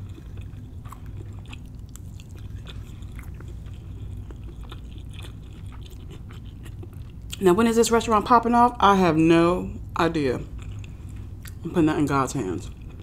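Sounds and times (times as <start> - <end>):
person chewing food: 0.0 - 7.4, 10.4 - 11.6, 12.6 - 13.0
low steady hum: 0.0 - 13.0.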